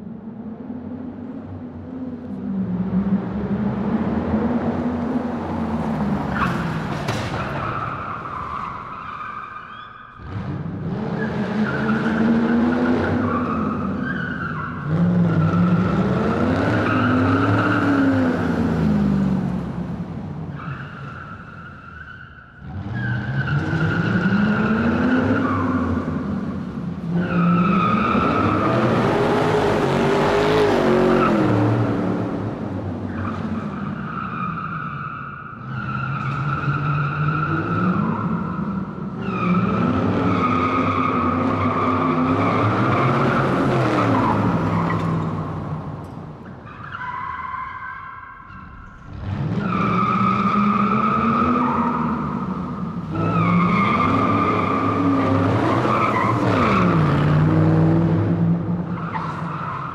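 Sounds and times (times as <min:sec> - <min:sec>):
car engine revving: 0:10.1 - 0:21.1, 0:22.6 - 0:34.6, 0:48.4 - 0:59.9.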